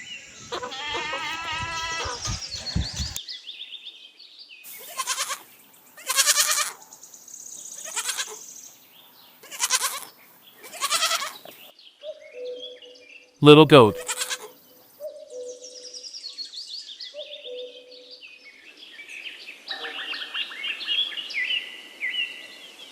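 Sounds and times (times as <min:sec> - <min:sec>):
goat bleating: 0:00.4 - 0:03.2, 0:04.9 - 0:05.4, 0:06.0 - 0:06.8, 0:07.8 - 0:08.4, 0:09.4 - 0:11.4, 0:13.8 - 0:14.5.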